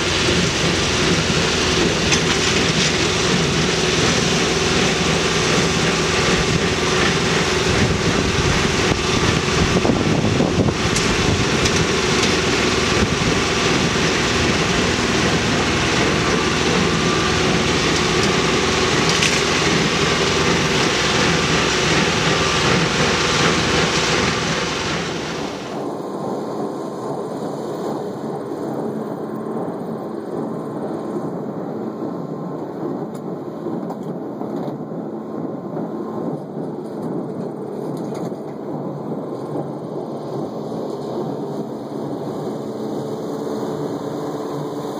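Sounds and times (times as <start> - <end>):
tractor diesel engine under load: 0.0 - 26.1, 38.5 - 44.9.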